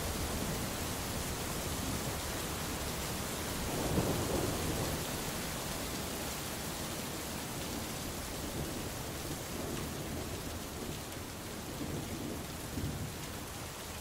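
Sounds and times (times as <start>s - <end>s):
steady rain falling: 0.0s - 14.0s
low rumble of thunder: 3.6s - 5.6s, 8.4s - 13.2s.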